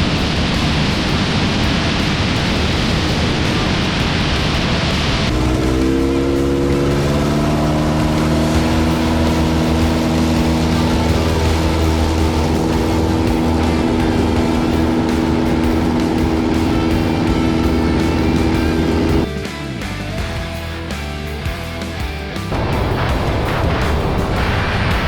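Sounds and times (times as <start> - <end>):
light aircraft engine droning: 0.0 - 19.3.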